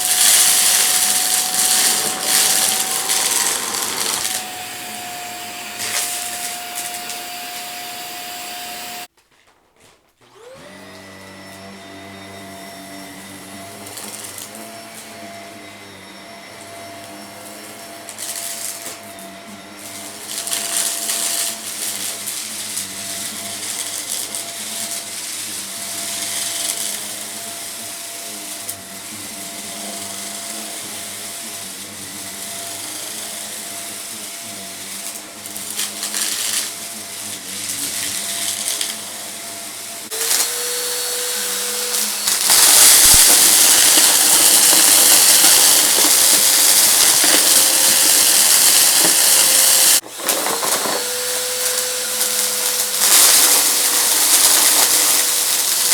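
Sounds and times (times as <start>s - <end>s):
debris rattling up vacuum intake: 0.0s - 9.1s, 40.1s - 55.9s
rushing hiss of suction: 0.0s - 9.1s, 12.5s - 55.9s
vacuum cleaner motor hum: 0.0s - 9.1s, 10.3s - 55.9s.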